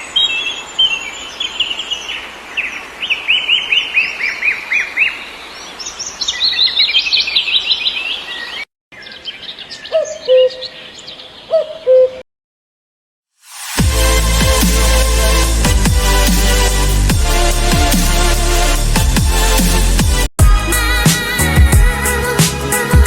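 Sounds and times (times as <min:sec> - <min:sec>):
birds chirping: 0:00.0 - 0:12.2.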